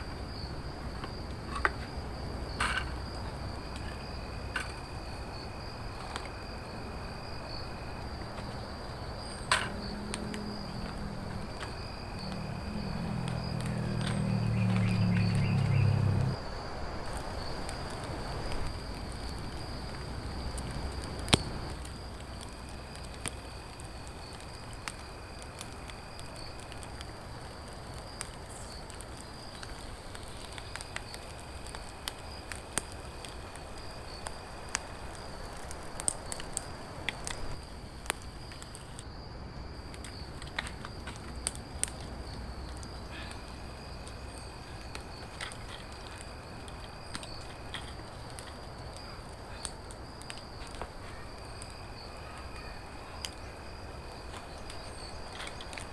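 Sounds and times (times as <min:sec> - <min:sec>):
sharp clicks and crackles: 0:00.0 - 0:06.4, 0:07.9 - 0:16.4, 0:17.1 - 0:39.1, 0:39.8 - 0:55.9
high insect-like drone: 0:00.0 - 0:55.9
low hum: 0:06.0 - 0:16.4.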